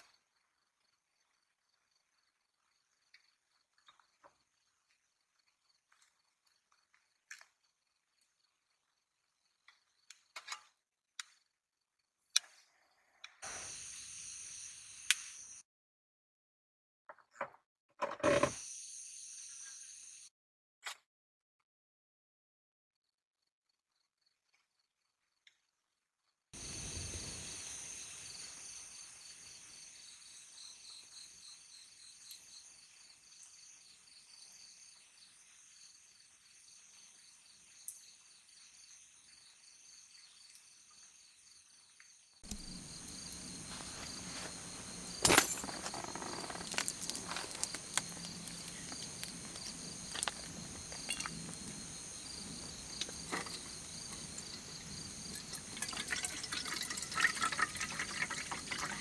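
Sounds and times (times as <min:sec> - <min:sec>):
crickets chirping: 0:13.4 - 0:15.6, 0:18.4 - 0:20.3, 0:26.6 - 0:59.0.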